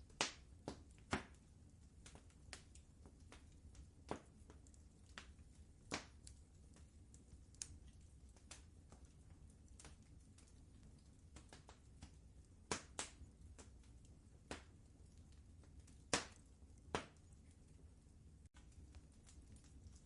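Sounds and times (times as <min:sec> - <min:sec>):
fireplace fire crackling: 0:00.0 - 0:20.0
sharp fire pops: 0:00.1 - 0:01.4, 0:02.0 - 0:06.8, 0:11.3 - 0:14.8, 0:15.6 - 0:17.4.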